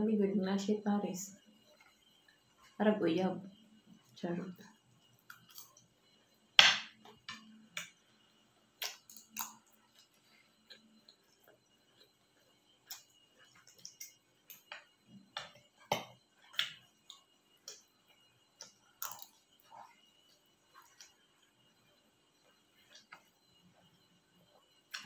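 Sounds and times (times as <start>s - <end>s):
crunchy chewing of fried food: 5.0s - 6.3s, 8.6s - 25.0s.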